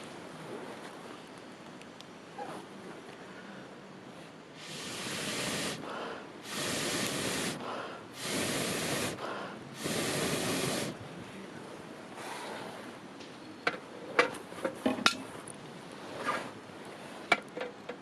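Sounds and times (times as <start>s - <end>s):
air puffs blown onto campfire: 4.5s - 11.0s.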